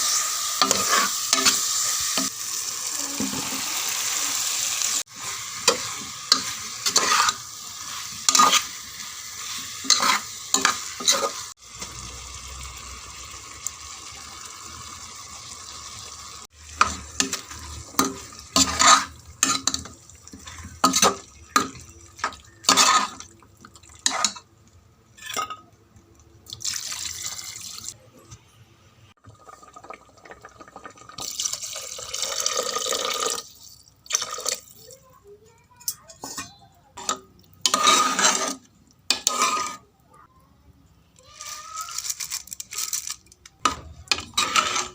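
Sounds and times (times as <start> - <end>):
food sizzling: 0.0 - 25.2, 26.4 - 28.0, 29.1 - 40.3, 41.2 - 44.9
spoon scraping a pot: 0.1 - 2.3, 5.2 - 8.8, 9.4 - 11.5, 16.7 - 23.3, 24.0 - 24.4, 35.9 - 39.9, 43.7 - 44.9.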